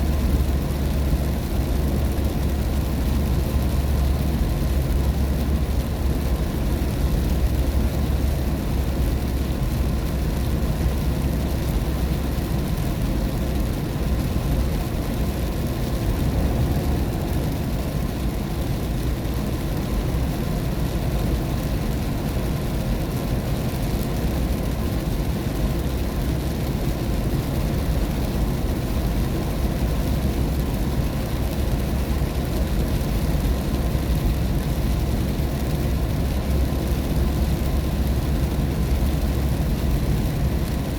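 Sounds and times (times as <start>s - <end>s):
tyres and engine rumble: 0.0s - 40.9s
water and rain hiss: 0.0s - 40.9s.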